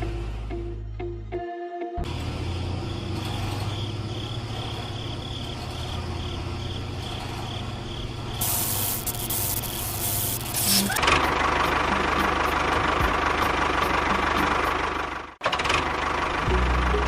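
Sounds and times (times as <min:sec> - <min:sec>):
small motor humming: 0:02.0 - 0:11.2
loud hiss: 0:08.4 - 0:11.0.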